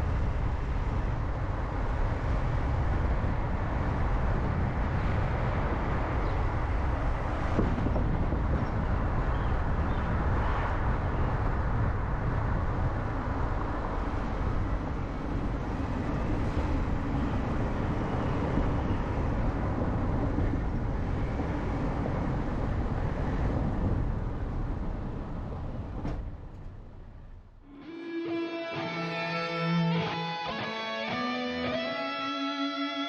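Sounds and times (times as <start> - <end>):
car road and engine noise: 0.0 - 33.0
guitar music: 27.7 - 33.0.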